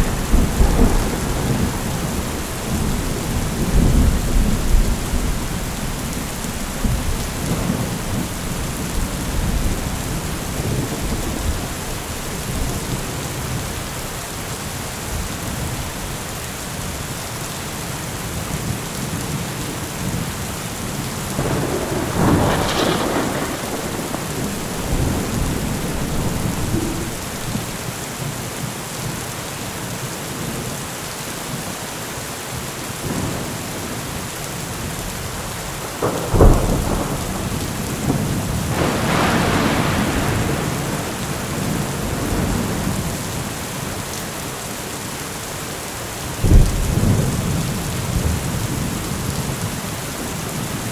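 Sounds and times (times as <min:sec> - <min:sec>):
thunder clap: 0:00.0 - 0:13.7, 0:21.4 - 0:27.9, 0:35.9 - 0:43.5, 0:46.4 - 0:48.9
thunder rumbling: 0:00.0 - 0:14.1, 0:21.3 - 0:27.9, 0:35.2 - 0:44.0, 0:46.4 - 0:49.8
heavy rain falling: 0:00.0 - 0:50.9.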